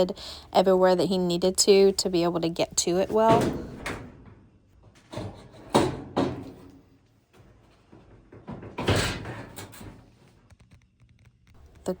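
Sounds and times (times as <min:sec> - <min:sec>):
knocks on sheet-metal cabinet: 0:05.2 - 0:06.7.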